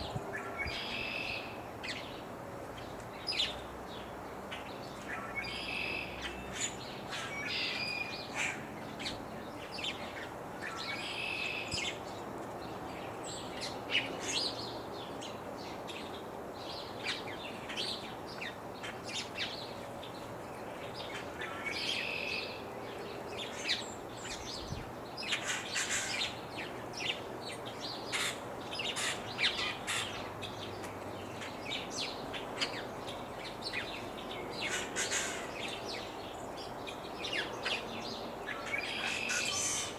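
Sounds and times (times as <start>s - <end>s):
birds chirping: 15.9s - 39.9s.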